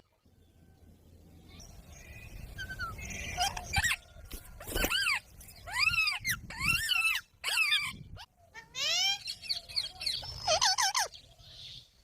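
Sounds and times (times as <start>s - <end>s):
parrot squawking: 4.9s - 9.5s, 10.3s - 11.1s.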